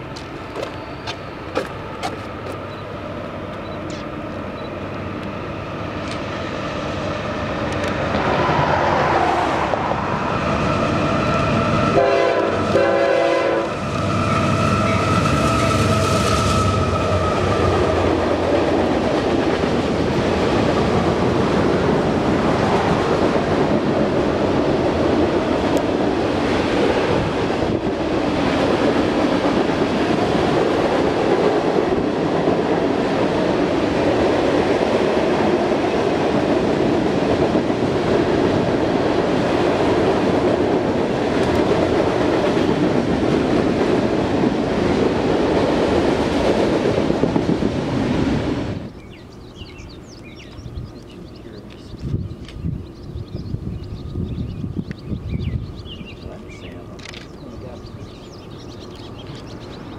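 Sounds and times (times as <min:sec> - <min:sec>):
freight cars clickety-clack: 0:00.0 - 0:02.8
diesel locomotive engine: 0:00.0 - 0:59.9
train horn blasts: 0:11.7 - 0:17.7.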